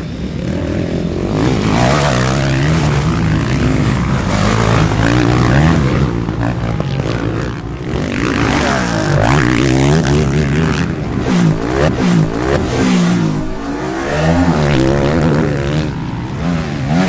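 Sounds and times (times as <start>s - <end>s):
motocross bike engines revving: 0.0s - 17.0s.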